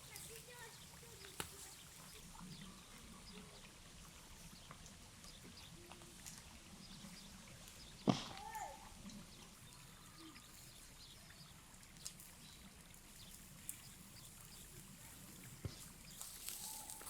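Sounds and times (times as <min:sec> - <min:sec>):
faint outdoor hiss: 0:00.0 - 0:17.0
faint sharp clicks: 0:01.2 - 0:01.8.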